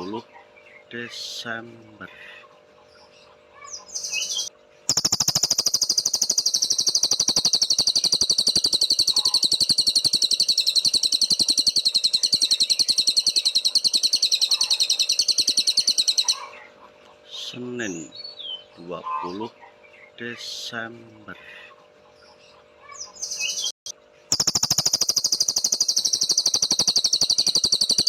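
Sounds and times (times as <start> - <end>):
songbird chirps: 0.0 - 28.0
songbird rapid trill: 3.7 - 16.6, 24.3 - 28.0.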